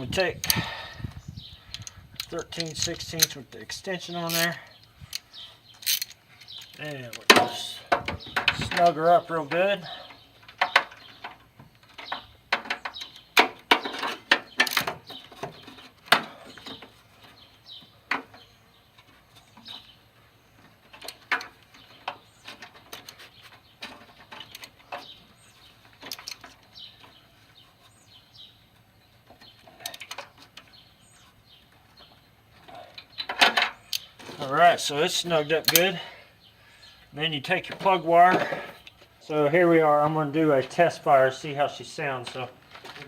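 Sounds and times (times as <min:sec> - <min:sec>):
ratchet wrench clicking: 0:05.1 - 0:06.7.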